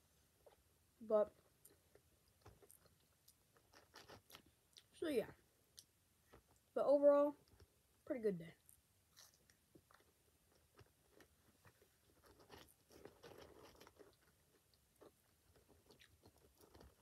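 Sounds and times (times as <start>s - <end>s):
faint chewing of food: 0.4s - 0.7s, 1.3s - 6.8s, 7.4s - 8.0s, 8.6s - 17.0s
small mouth clicks: 5.7s - 6.0s.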